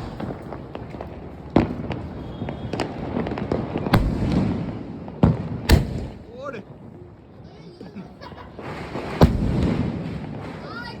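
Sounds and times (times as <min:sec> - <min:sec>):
fireworks popping and crackling: 0:00.0 - 0:11.0
firework shells bursting: 0:03.9 - 0:04.8, 0:05.6 - 0:06.3, 0:08.8 - 0:10.6.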